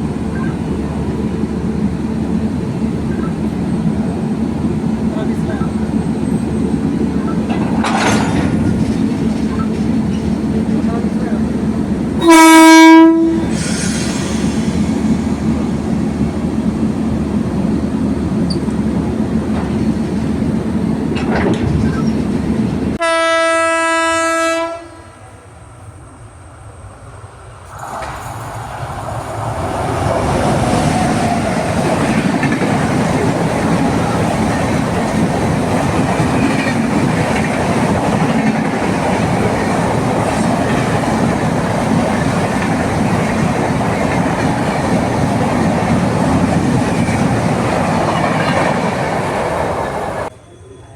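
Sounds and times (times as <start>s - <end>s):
train wheels rumbling and clacking: 0.0s - 23.0s, 27.4s - 50.3s
train horn blasts: 12.2s - 13.6s, 23.0s - 25.3s.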